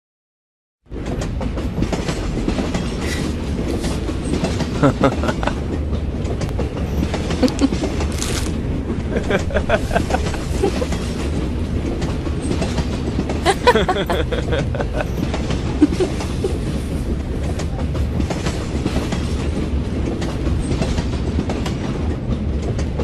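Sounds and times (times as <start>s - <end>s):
train rumbling and clattering: 0.9s - 23.0s
person's voice: 7.4s - 7.8s, 13.5s - 14.5s, 15.8s - 16.2s.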